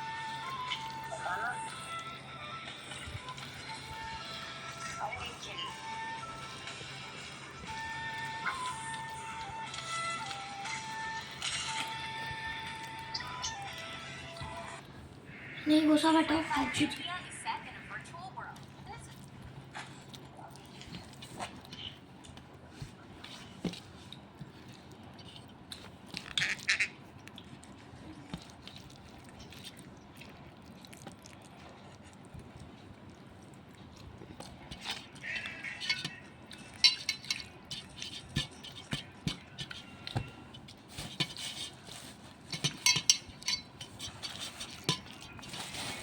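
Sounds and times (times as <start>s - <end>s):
beak clinking against bowl: 35.3s - 39.0s, 42.5s - 45.2s.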